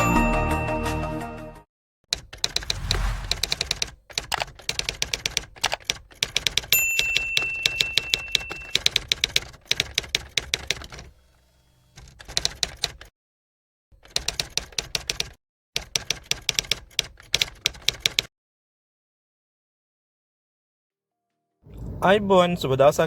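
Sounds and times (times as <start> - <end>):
typewriter bell ding: 6.7 - 9.0.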